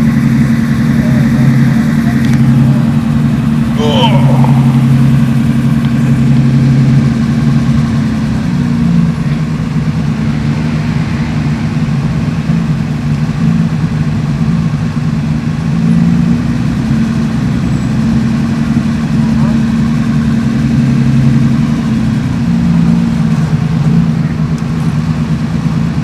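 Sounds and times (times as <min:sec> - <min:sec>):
car engines droning: 0:00.0 - 0:14.9.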